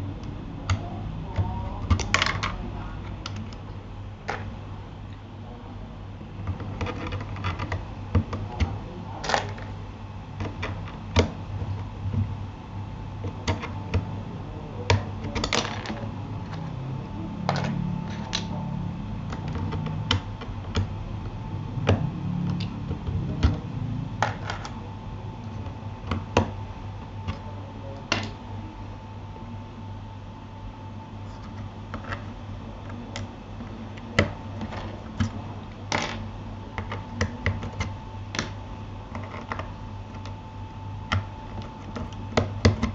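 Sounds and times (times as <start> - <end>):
steady low hum: 0.0 - 42.9
keyboard plastic clicks and taps: 41.1 - 42.9.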